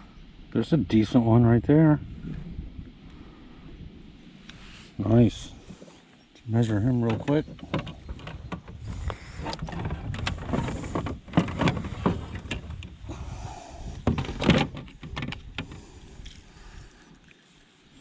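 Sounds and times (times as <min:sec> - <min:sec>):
steady low rumble: 0:00.0 - 0:17.3
knocks and clunks of fishing gear: 0:07.0 - 0:13.2, 0:13.8 - 0:16.4.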